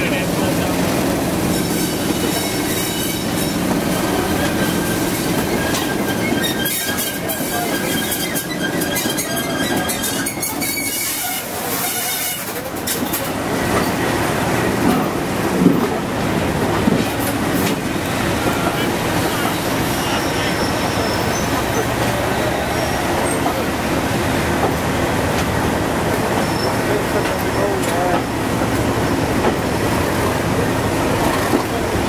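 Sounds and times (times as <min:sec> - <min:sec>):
diesel train running: 0:00.0 - 0:32.0
high wheel squeal: 0:01.4 - 0:14.1, 0:18.4 - 0:23.7, 0:26.4 - 0:27.8.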